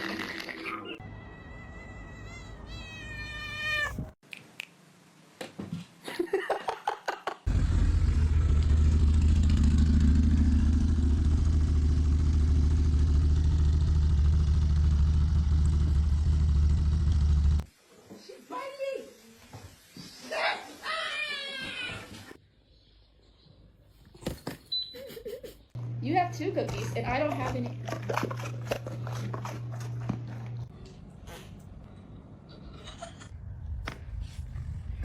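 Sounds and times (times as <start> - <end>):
cat meowing: 1.0 - 4.2.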